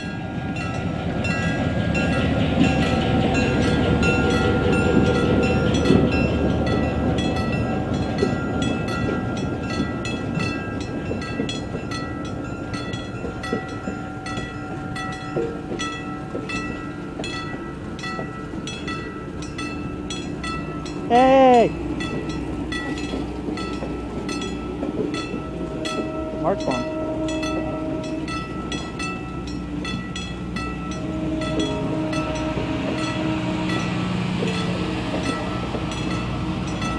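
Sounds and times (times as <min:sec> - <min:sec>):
crossing bell ringing: 0:00.0 - 0:36.9
train wheels clattering: 0:00.0 - 0:36.9.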